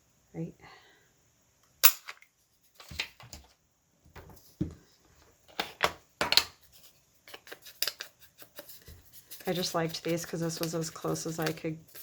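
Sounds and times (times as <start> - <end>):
crafting tools clicking and tapping: 10.4 - 11.7.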